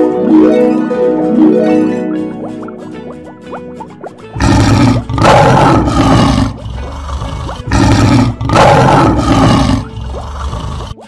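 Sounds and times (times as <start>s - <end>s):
faint background music: 0.0s - 11.0s
lion roar: 4.4s - 11.0s.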